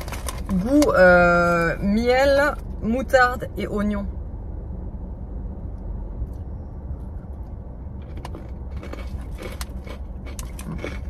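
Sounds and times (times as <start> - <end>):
low rumble inside car: 0.0 - 11.0
pretzels crunching as chewed: 8.0 - 11.0.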